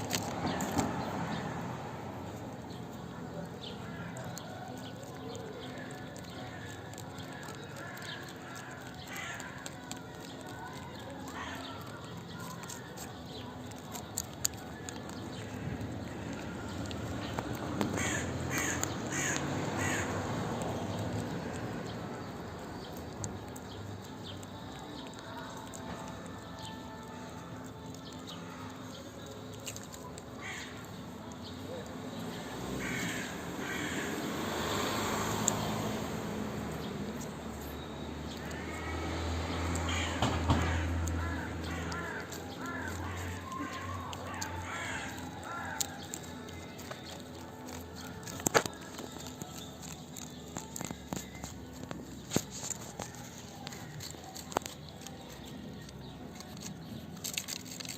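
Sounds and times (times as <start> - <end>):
steady background noise: 0.0 - 57.9
harsh caw-like animal call: 18.0 - 20.2, 32.8 - 34.3, 39.8 - 46.0.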